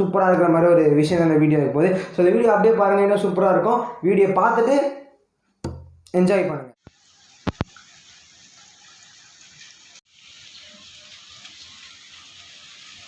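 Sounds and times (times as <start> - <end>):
steady rain falling: 6.8 - 13.0.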